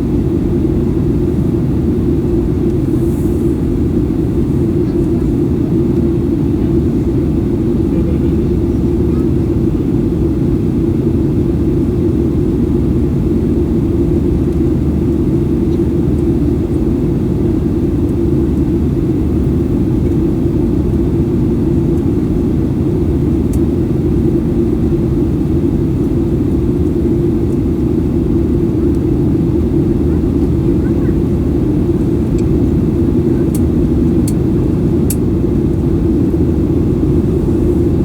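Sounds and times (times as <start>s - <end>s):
jet engine rumble: 0.0s - 38.0s.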